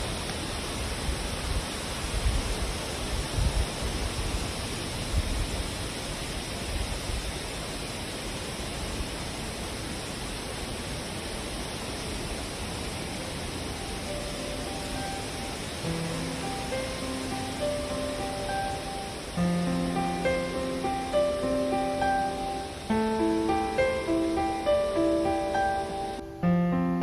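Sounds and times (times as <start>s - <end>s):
wind buffeting microphone: 0.0s - 9.7s
wind blowing: 0.0s - 27.0s.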